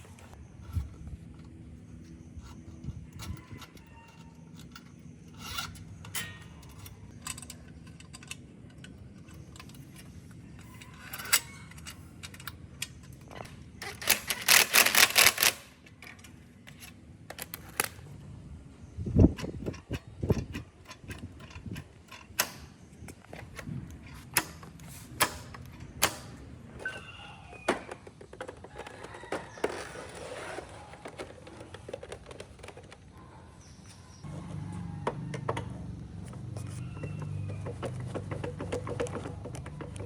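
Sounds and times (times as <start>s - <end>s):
tools clicking and knocking: 0.4s - 18.0s, 19.3s - 33.1s, 36.4s - 40.0s.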